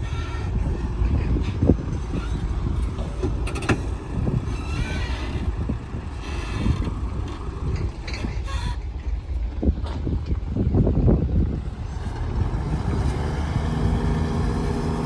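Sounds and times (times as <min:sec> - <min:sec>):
heavy machinery diesel engines rumbling: 0:00.0 - 0:15.0
short squeals: 0:03.6 - 0:08.9.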